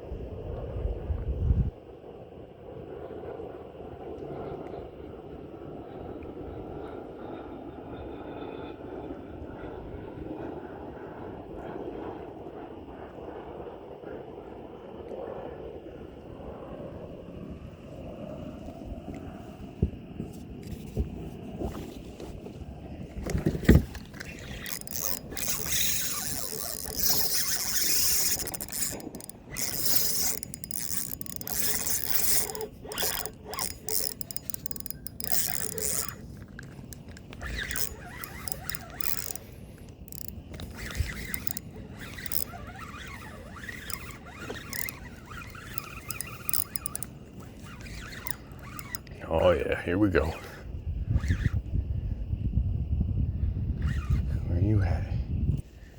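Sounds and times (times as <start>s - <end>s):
fishing reel winding: 23.3s - 49.2s.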